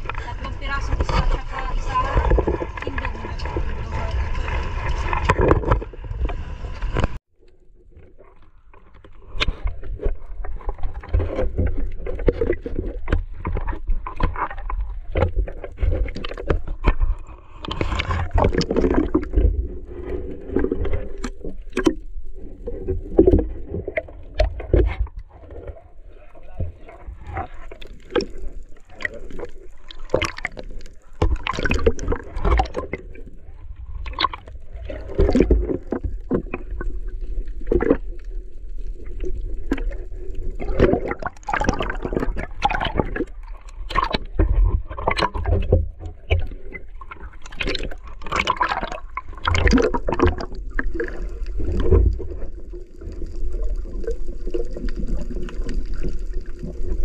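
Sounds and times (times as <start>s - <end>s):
low rumble: 0.0s - 7.2s
water gurgling underwater: 0.0s - 57.0s.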